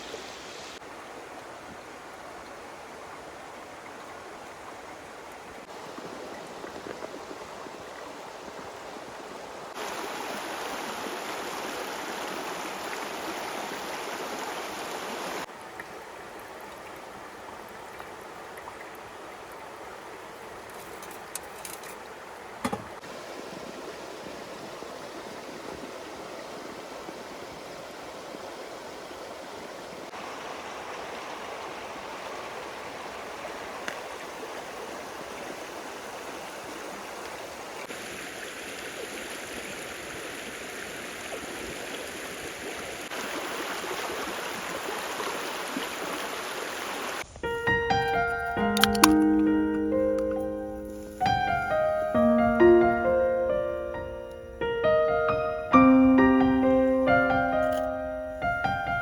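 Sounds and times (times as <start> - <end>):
running water rushing: 0.0 - 59.0
sharp click: 48.8 - 49.4.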